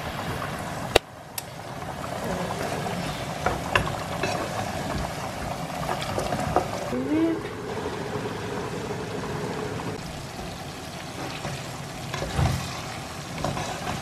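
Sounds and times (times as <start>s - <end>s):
vegetables frying in oil: 0.0s - 14.0s.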